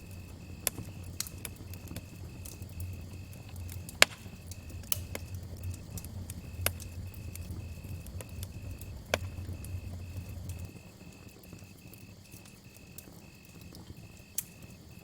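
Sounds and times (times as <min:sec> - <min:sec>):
low steady rumble: 0:00.0 - 0:11.1
campfire crackling and popping: 0:00.0 - 0:15.0
crickets chirping: 0:00.0 - 0:15.0.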